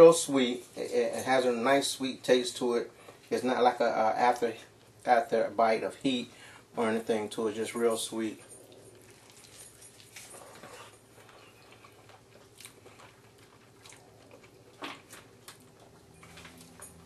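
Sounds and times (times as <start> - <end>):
man chewing food: 8.5 - 17.0.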